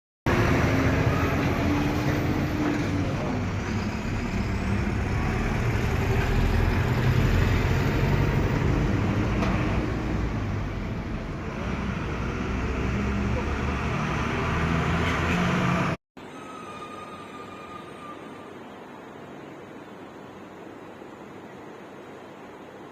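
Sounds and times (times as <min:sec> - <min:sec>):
vehicle engines rumbling: 0:00.3 - 0:16.0
road noise: 0:00.3 - 0:22.9.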